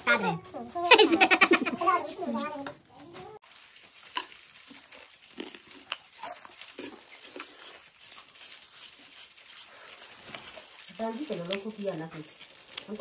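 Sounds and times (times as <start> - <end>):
chewing crunchy food: 3.4 - 13.0.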